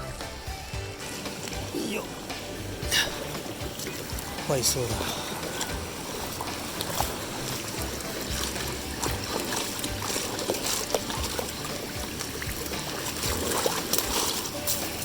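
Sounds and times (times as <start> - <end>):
stream water running: 0.0 - 15.0
small clicks and splashes: 3.2 - 15.0.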